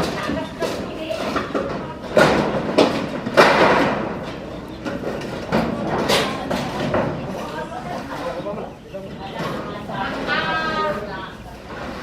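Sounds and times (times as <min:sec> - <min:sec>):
rattling clatter: 0:00.0 - 0:08.5
roofing materials knocking: 0:00.0 - 0:12.0.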